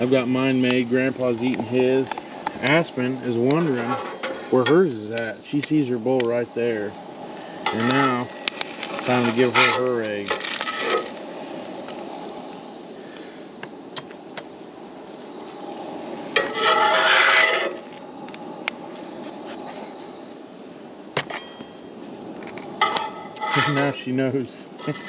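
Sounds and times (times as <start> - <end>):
insects chirring: 0.0 - 25.0
scraping rustling sound: 7.6 - 12.4, 16.4 - 18.0, 22.8 - 24.1.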